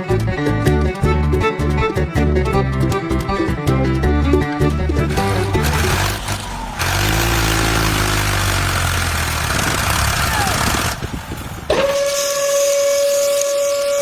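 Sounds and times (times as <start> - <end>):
steady whistle-like tone: 11.7 - 14.0.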